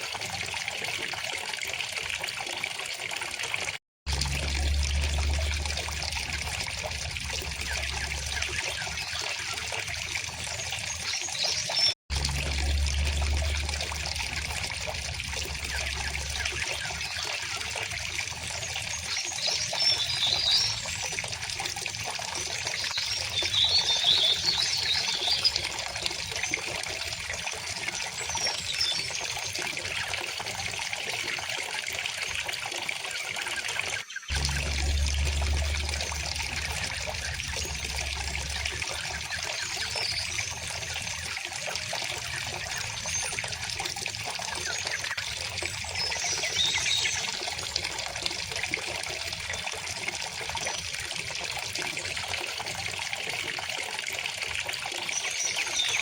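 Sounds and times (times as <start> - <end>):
low rumble: 4.1 - 8.8, 12.1 - 16.6, 34.3 - 41.1
river water flowing: 4.1 - 11.0, 34.3 - 47.9.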